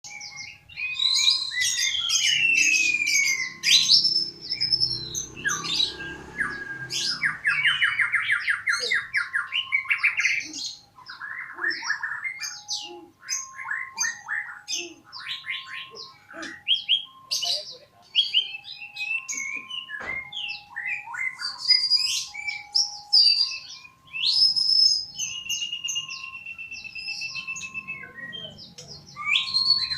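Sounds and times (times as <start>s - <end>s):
songbird singing: 0.0s - 29.9s.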